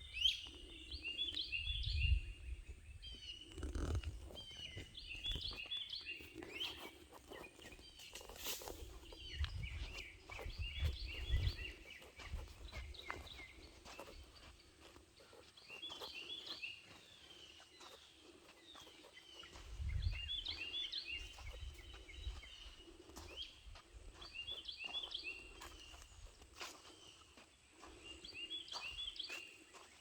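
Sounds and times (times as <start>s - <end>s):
songbird chirping: 0.0s - 30.0s.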